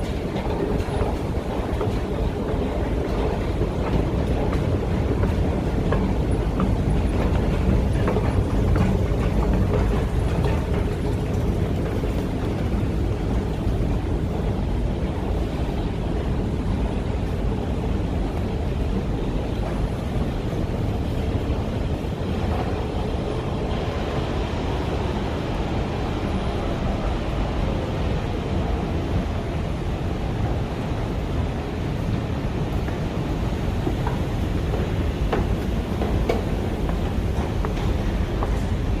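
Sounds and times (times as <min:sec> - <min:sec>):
city street traffic: 0:00.0 - 0:39.0
wind rumbling on microphone: 0:00.0 - 0:39.0.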